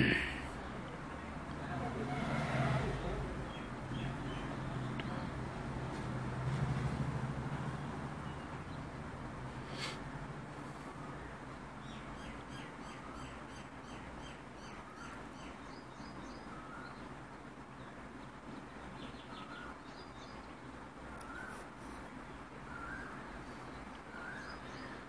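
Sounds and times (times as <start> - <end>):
birds chirping: 0.0 - 2.1, 3.3 - 5.6, 10.6 - 25.0.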